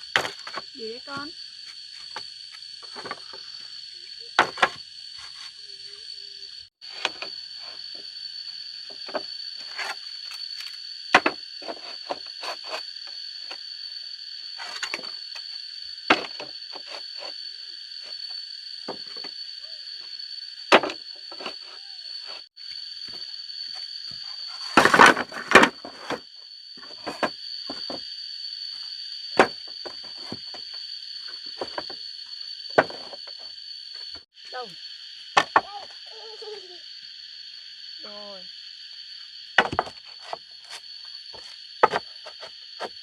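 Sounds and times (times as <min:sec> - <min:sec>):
high-pitched insect drone: 0:00.0 - 0:43.0
wooden knocks and clatter: 0:24.1 - 0:26.2, 0:39.6 - 0:40.4, 0:41.8 - 0:43.0.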